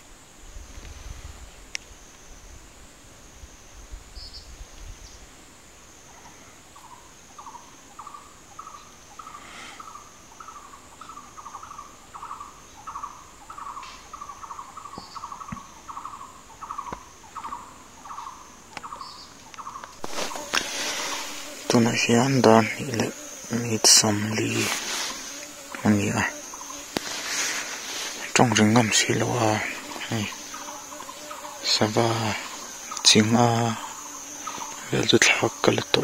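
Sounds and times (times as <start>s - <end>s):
insect high-pitched trill: 5.8s - 36.0s.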